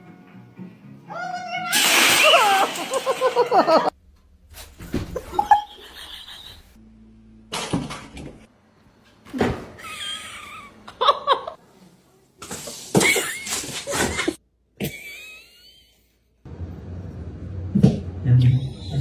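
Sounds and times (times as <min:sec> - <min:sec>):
people laughing: 0:02.4 - 0:03.9, 0:05.2 - 0:06.8.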